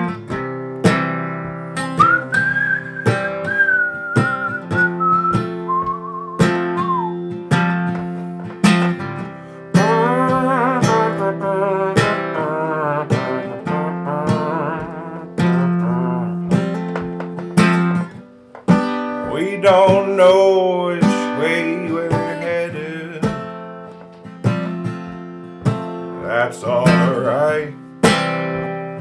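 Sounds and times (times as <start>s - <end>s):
acoustic guitar strumming: 0.0s - 29.0s
whistled melody: 1.8s - 8.5s
wordless wavering vocal: 9.8s - 16.5s.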